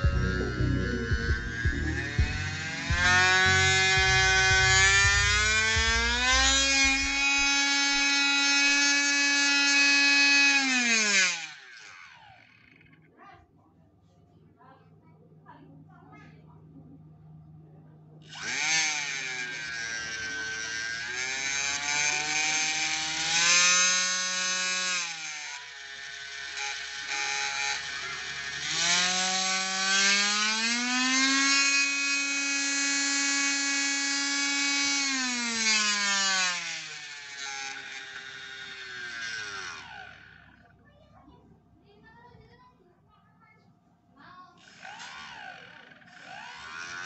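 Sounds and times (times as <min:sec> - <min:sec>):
electric motor whine: 0:00.0 - 0:12.8, 0:18.3 - 0:40.7, 0:44.6 - 0:47.0.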